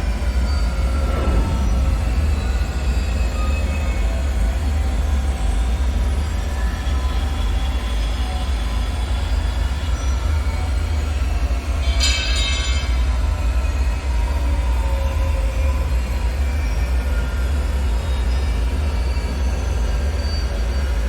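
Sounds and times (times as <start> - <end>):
deep rumble: 0.0 - 6.1
high metallic screech: 0.1 - 4.6, 11.7 - 15.9.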